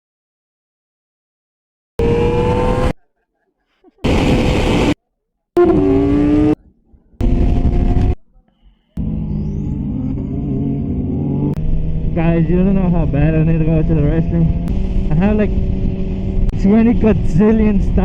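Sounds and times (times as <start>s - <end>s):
high-revving performance engines: 2.0s - 3.0s, 4.0s - 5.0s, 5.6s - 8.2s, 9.0s - 18.0s
low steady engine running: 8.9s - 18.0s.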